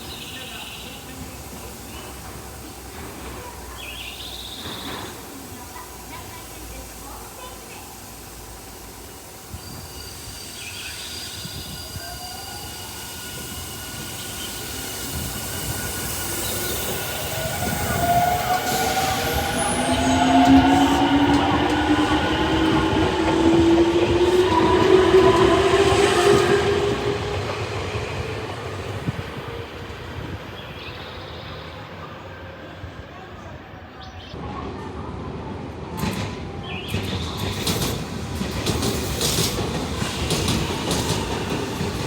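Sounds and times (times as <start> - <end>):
electric train motors whining: 8.2 - 29.1.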